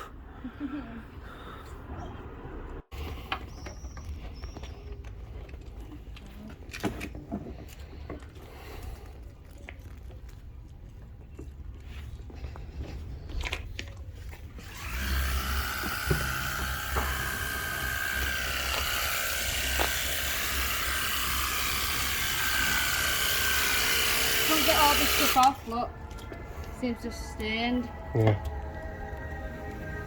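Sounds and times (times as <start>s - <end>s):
electric motor whining: 14.6s - 25.6s.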